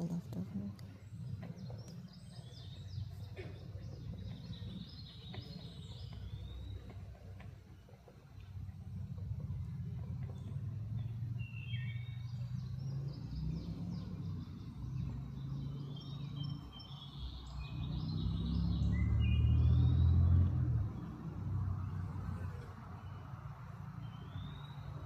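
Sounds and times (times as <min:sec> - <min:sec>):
steady low rumble: 0:00.0 - 0:15.7
birds chirping: 0:00.0 - 0:25.0.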